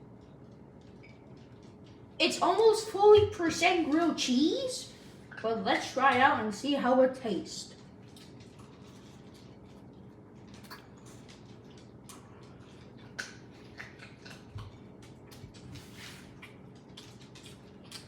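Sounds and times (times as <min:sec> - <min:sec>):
low steady hum: 0:00.0 - 0:18.0
person chewing a sandwich: 0:07.8 - 0:18.0.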